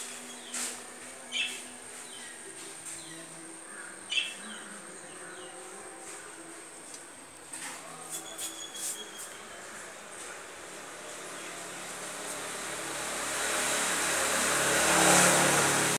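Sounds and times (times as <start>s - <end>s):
birds chirping: 1.3s - 6.5s.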